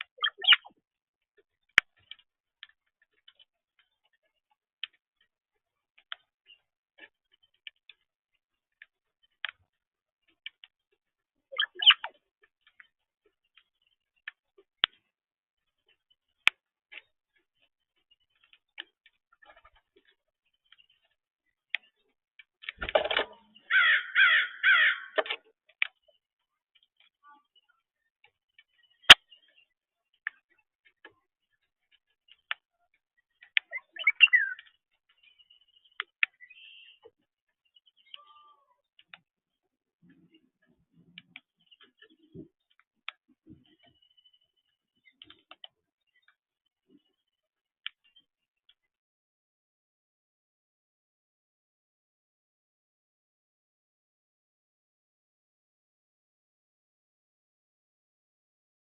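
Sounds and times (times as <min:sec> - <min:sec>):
bird chirping calls: 0:00.0 - 0:00.8, 0:11.4 - 0:14.5, 0:23.3 - 0:26.3, 0:33.2 - 0:39.0.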